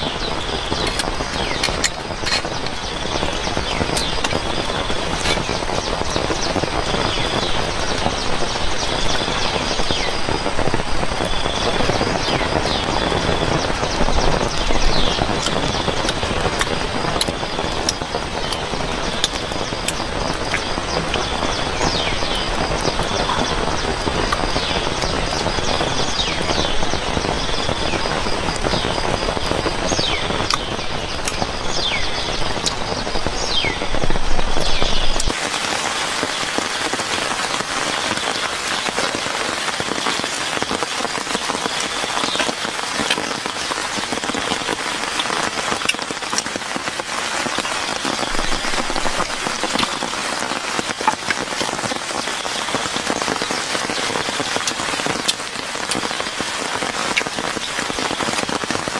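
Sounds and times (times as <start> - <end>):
rain falling: 0.0 - 58.9
short chirping calls: 11.2 - 35.4.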